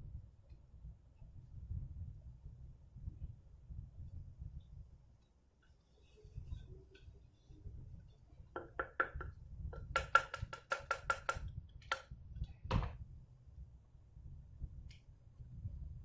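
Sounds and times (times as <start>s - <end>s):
plastic parts clicking and knocking: 8.5s - 12.1s.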